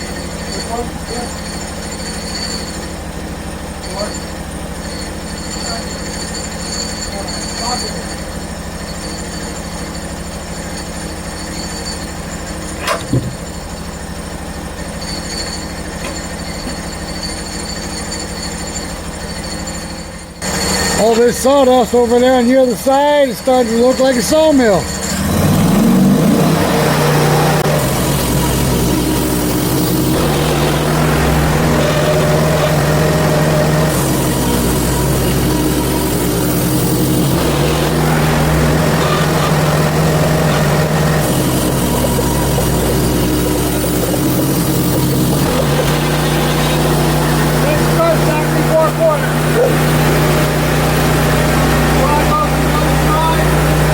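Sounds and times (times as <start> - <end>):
high-pitched whining: 0.0 - 53.9
sawmill engine running: 0.0 - 53.9
saw blade hissing: 23.9 - 53.9.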